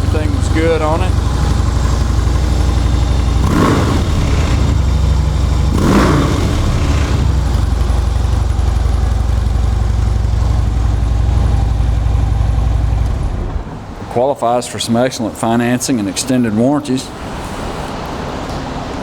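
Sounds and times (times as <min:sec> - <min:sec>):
motorcycle engine idling: 0:00.0 - 0:13.9.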